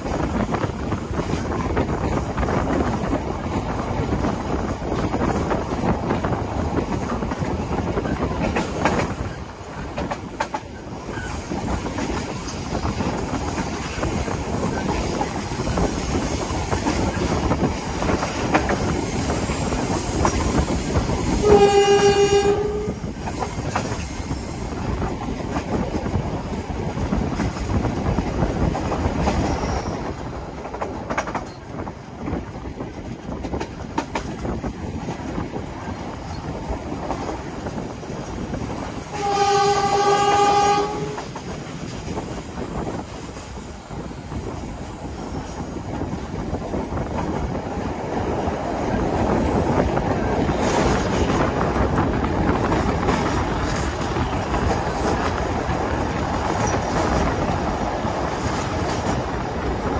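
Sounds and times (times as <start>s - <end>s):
train wheels clattering on rails: 0.0s - 59.9s
train horn: 21.3s - 23.1s, 39.1s - 41.3s.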